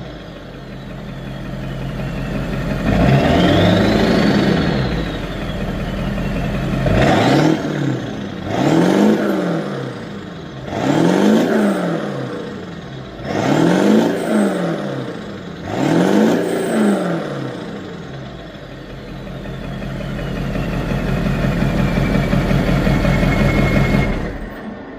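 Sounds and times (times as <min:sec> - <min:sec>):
truck engine idling and revving: 0:00.0 - 0:24.9.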